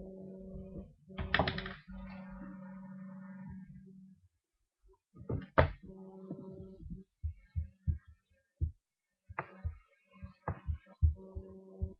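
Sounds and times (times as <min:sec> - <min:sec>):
low electrical hum: 0:00.0 - 0:07.9.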